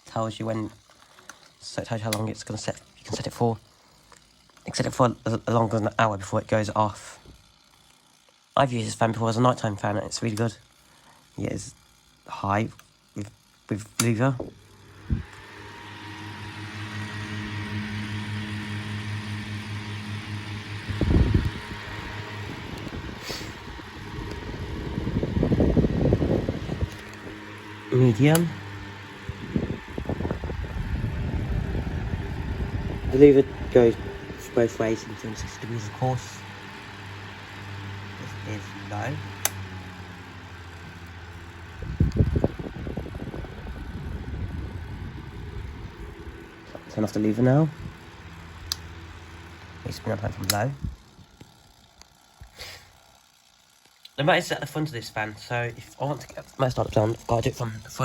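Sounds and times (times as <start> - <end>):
box fan humming: 0.0 - 58.0
loud low rumble: 15.0 - 35.8.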